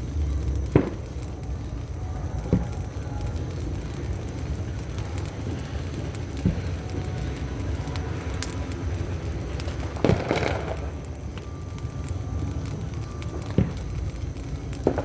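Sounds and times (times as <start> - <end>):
firecrackers banging: 0.0 - 15.0
firecrackers crackling: 0.0 - 15.0
low background rumble: 0.0 - 15.0.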